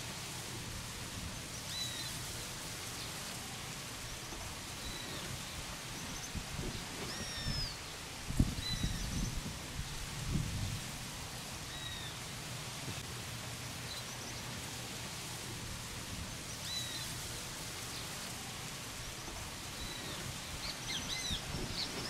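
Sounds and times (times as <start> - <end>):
steady outdoor hiss: 0.0 - 22.0
bird whistled notes: 7.0 - 7.8.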